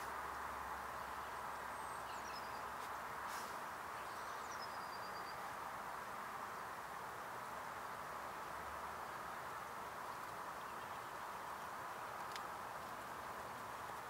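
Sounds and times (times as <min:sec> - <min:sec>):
outdoor background noise: 0:00.0 - 0:14.0
faint clicks: 0:12.2 - 0:13.0.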